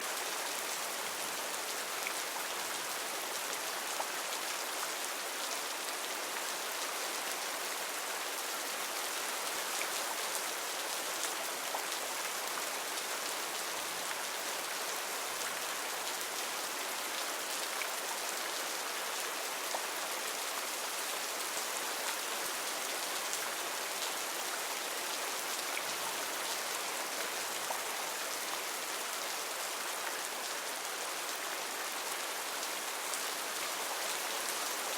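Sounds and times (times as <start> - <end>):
heavy rain on foliage: 0.0 - 34.9.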